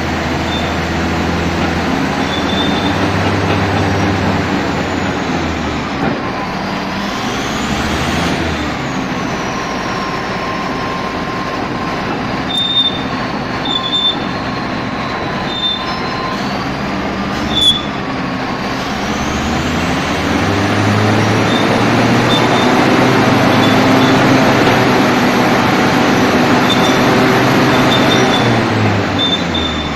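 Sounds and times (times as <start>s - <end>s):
heavy diesel machinery running: 0.0s - 29.9s
machinery whine: 0.0s - 29.9s
short high squeaks: 0.4s - 1.0s, 2.1s - 4.0s, 12.5s - 16.8s, 17.4s - 18.0s, 21.2s - 25.0s, 26.4s - 28.6s, 29.2s - 29.9s.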